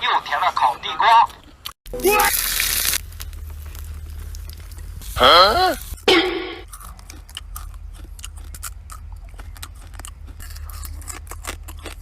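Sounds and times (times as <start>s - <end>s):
steady low hum: 3.0s - 12.0s
person chewing food: 6.6s - 12.0s.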